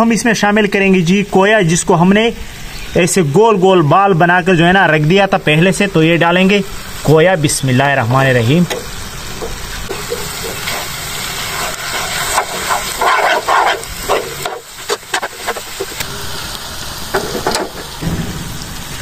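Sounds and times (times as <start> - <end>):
food sizzling in a pan: 5.9 - 19.0
steel spoon scraping a pan: 9.9 - 16.0.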